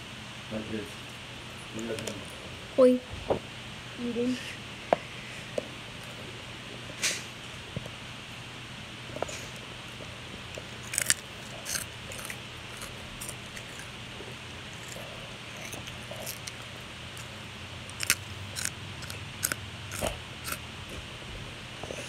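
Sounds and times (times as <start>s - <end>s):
steady low hum: 0.0s - 22.0s
cereal crunching: 10.6s - 20.6s.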